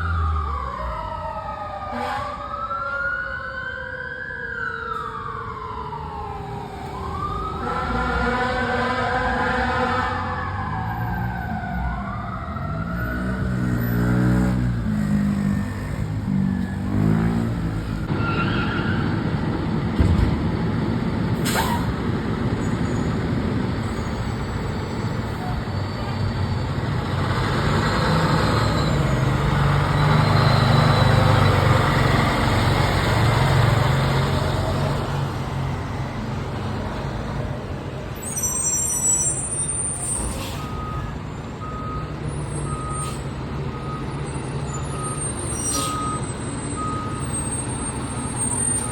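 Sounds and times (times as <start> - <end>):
air brake hisses: 21.4 - 22.0, 40.0 - 40.8, 43.0 - 43.4, 45.6 - 46.1.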